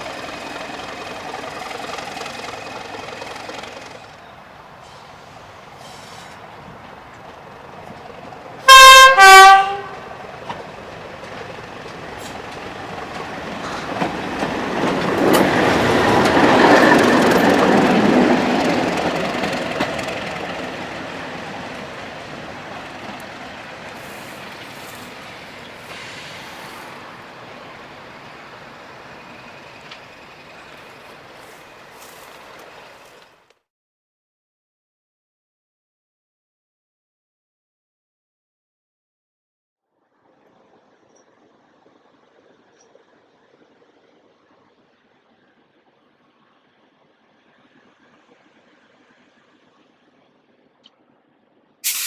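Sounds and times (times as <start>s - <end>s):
locomotive and train passing: 0.0s - 33.6s, 40.2s - 52.0s
diesel locomotive horn: 8.6s - 10.6s, 19.2s - 28.2s.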